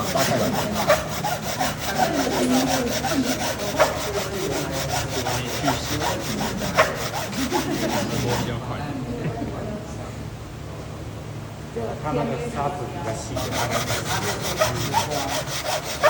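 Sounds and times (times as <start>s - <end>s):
sandpaper scrubbing wood: 0.0s - 8.6s, 13.3s - 16.0s.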